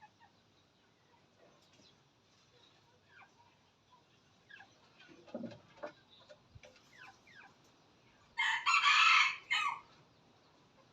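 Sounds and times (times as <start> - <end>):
low cluck: 0.0 - 0.4, 2.4 - 7.8
rooster crowing: 8.4 - 9.9.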